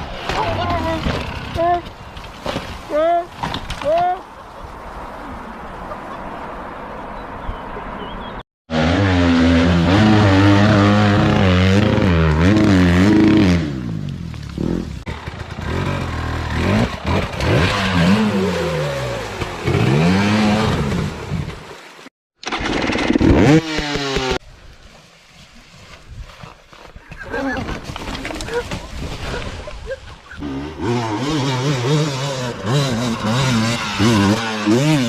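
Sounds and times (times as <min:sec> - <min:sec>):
dirt bike engines revving: 0:07.4 - 0:21.6, 0:23.2 - 0:24.4, 0:30.3 - 0:35.0.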